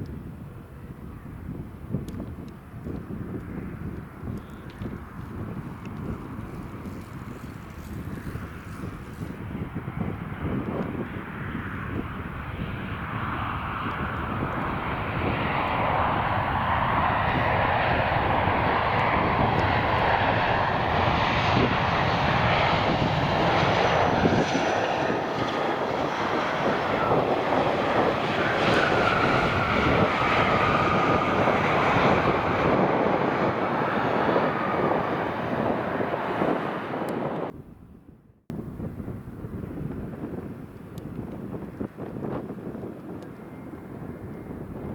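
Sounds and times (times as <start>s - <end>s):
jet airliner passing: 0.3s - 37.8s
faint whine dropping in pitch: 13.9s - 37.5s.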